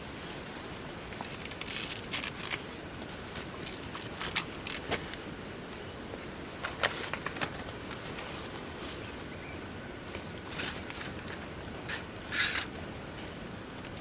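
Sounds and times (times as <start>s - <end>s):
rustling crunching noises: 0.0s - 5.3s.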